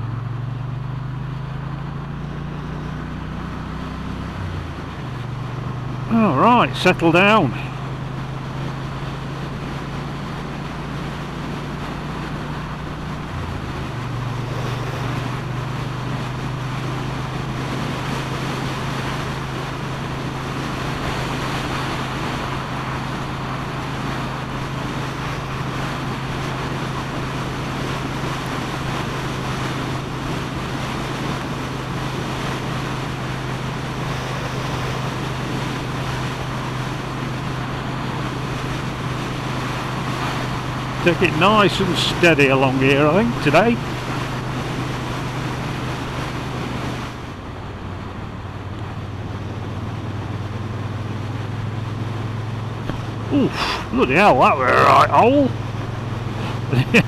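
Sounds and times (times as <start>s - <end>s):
motorcycle engine running: 0.0s - 41.8s
wind and road noise: 0.0s - 57.0s.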